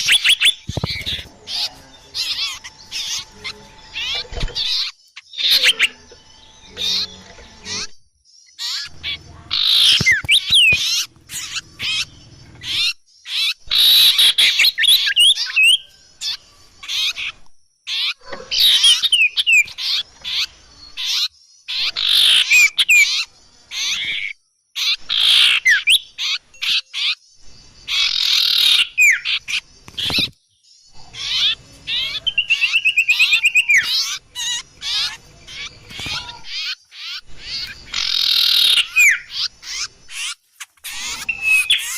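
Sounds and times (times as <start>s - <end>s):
fast even bird trill: 0.0s - 23.2s, 31.0s - 41.9s
songbird chirps and whistles: 0.0s - 41.9s.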